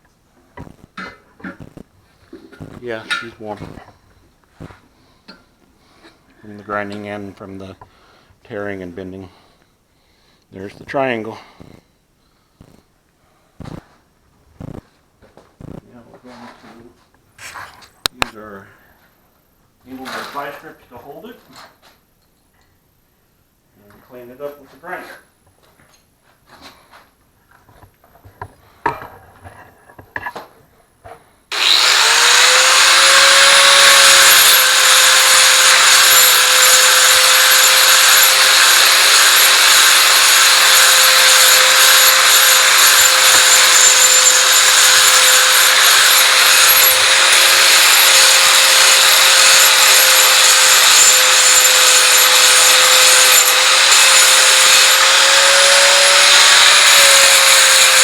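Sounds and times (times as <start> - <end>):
grinder grinding steel: 31.5 - 58.0.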